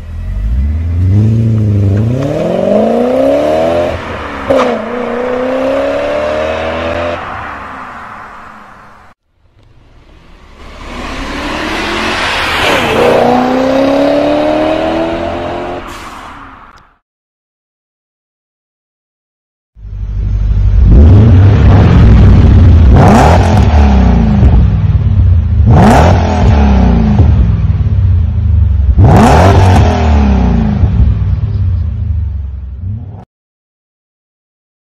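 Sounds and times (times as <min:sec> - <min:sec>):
car engine accelerating: 0:00.0 - 0:07.2, 0:09.5 - 0:15.9.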